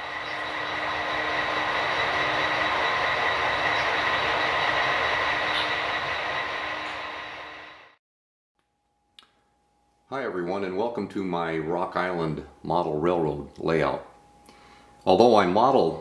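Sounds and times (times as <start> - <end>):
thin high whine: 0.0 - 8.0
train running: 0.0 - 8.0.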